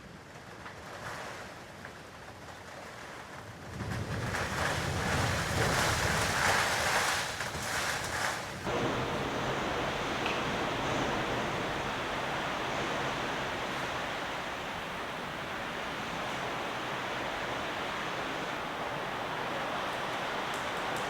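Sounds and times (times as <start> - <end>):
wind rumble on microphone: 3.6 - 21.0
wind gusting: 8.6 - 21.0.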